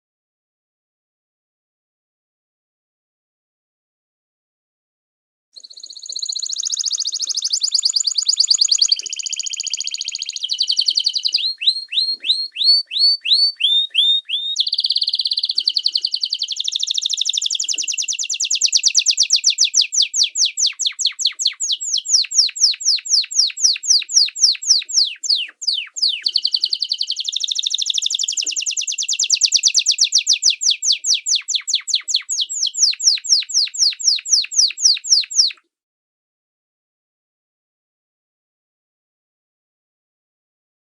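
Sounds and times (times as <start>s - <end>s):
songbird trilling: 5.6s - 35.6s.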